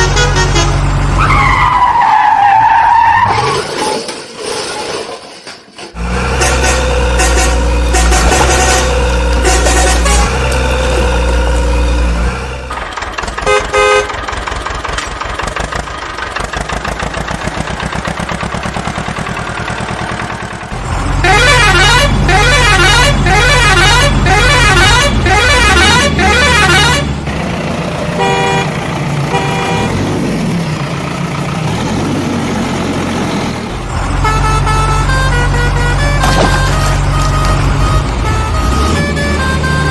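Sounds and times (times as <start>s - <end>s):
engine hum: 0.0s - 3.8s, 5.8s - 39.9s
short horn honks: 6.4s - 10.5s.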